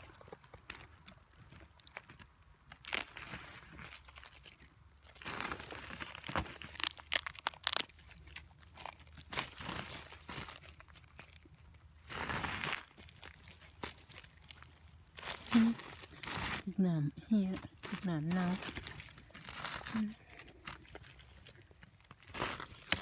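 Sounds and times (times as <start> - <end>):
brittle material crunching and crackling: 0.0 - 23.0.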